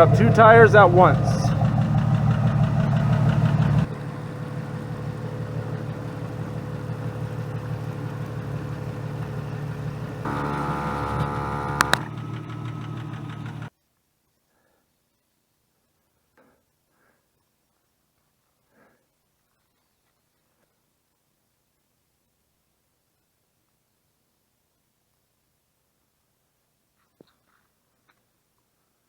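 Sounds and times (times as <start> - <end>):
air compressor running: 0.0 - 13.7
car engine idling: 0.0 - 13.7
sharp clicks: 10.3 - 12.5
pitched tone: 10.3 - 12.9.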